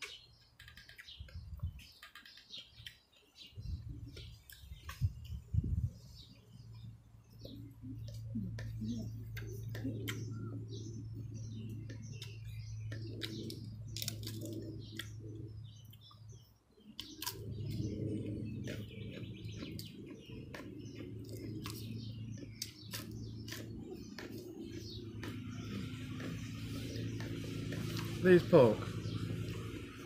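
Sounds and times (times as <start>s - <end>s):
birds chirping: 0.0s - 30.0s
low hum: 3.6s - 30.0s.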